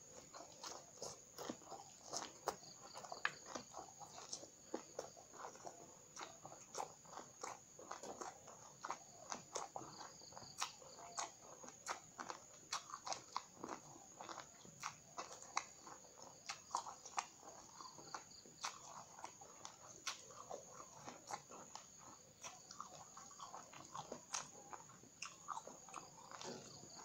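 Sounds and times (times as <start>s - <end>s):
crisp crunching chewing: 0.0s - 27.0s.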